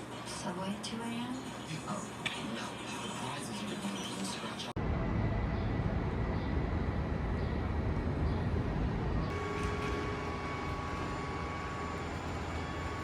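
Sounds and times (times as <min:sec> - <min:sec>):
steady whine: 0:04.6 - 0:13.0
vehicle rumbling: 0:04.8 - 0:13.0.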